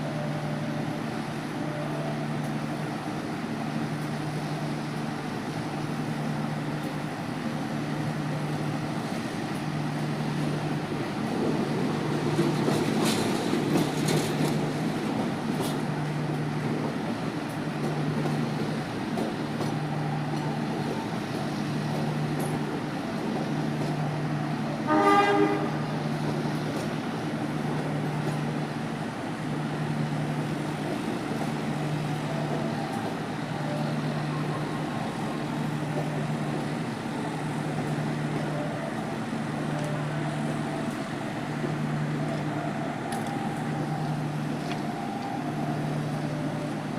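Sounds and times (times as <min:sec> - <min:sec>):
train rumble and hum: 0:00.0 - 0:46.9
train horn blast: 0:24.8 - 0:25.9.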